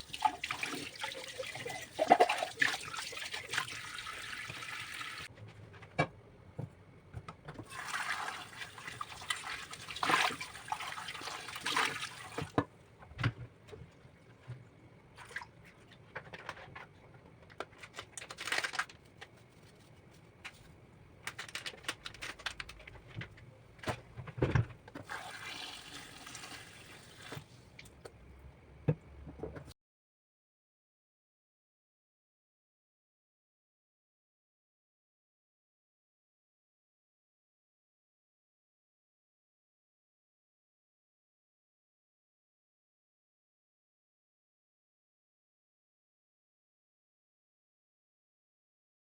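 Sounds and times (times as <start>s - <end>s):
water running: 0.0s - 5.3s, 7.7s - 12.6s, 25.0s - 28.0s.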